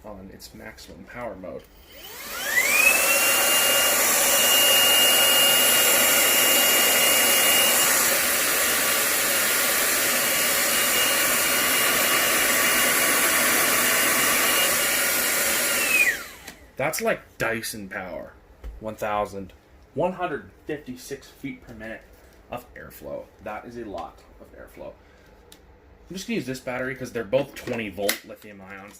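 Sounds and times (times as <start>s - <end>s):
stick vacuum motor whine: 1.7s - 16.8s.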